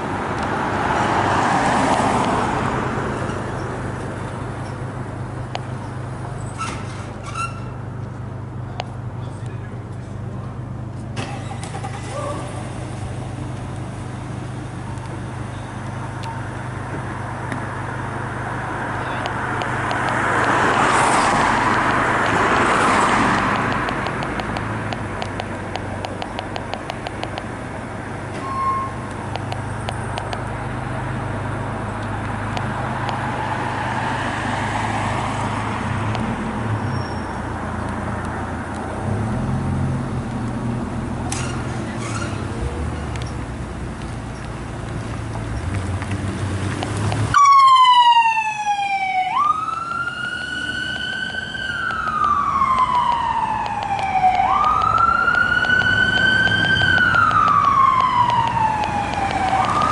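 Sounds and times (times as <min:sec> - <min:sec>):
vehicle passing close by: 0:00.0 - 0:04.0, 0:16.8 - 0:25.3, 0:30.6 - 0:37.8, 0:45.0 - 0:59.9
low traffic engine hum: 0:00.0 - 0:59.9
light ticks: 0:23.4 - 0:27.5, 0:29.1 - 0:30.5, 0:43.1 - 0:47.3.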